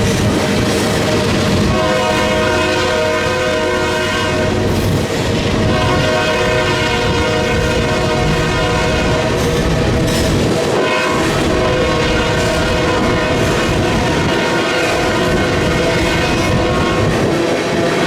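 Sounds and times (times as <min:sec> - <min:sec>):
train rumbling and clattering: 0:00.0 - 0:18.0
locomotive air horn blasts: 0:01.0 - 0:04.7, 0:05.6 - 0:09.5, 0:10.7 - 0:18.0
wind on microphone: 0:04.3 - 0:18.0.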